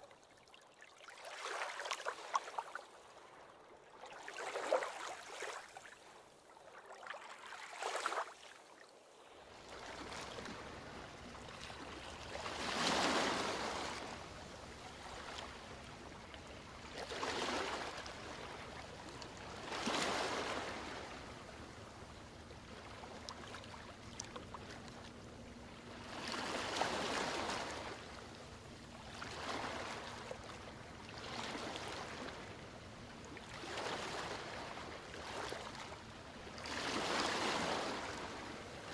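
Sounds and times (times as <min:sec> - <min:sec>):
ocean waves breaking on beach: 0:09.4 - 0:22.6, 0:25.8 - 0:38.9.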